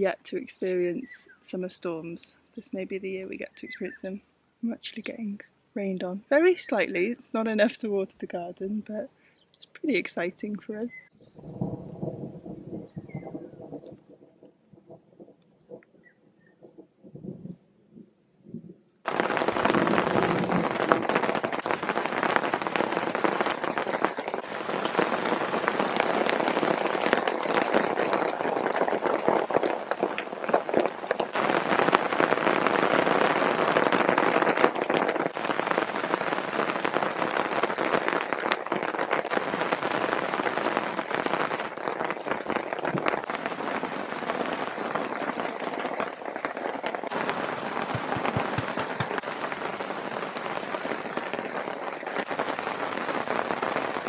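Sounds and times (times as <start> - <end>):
rain on foliage: 19.1 - 54.0.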